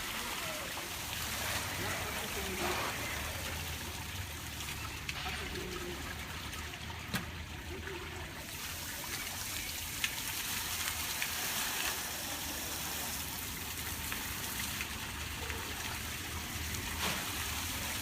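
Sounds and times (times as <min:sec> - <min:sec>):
water fountain splashing: 0:00.0 - 0:18.0.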